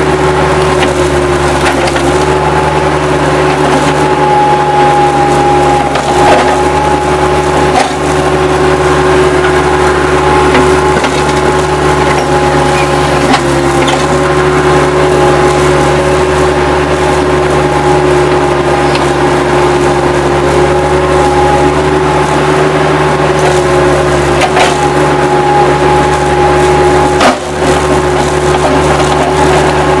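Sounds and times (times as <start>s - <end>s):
diesel engine running with whine: 0.0s - 30.0s
wood cracking and splintering: 0.6s - 8.7s, 9.6s - 16.2s, 23.4s - 30.0s.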